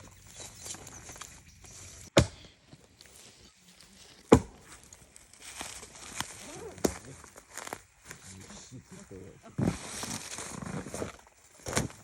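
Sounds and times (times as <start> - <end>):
axe chopping firewood: 2.1 - 2.6, 4.3 - 4.8.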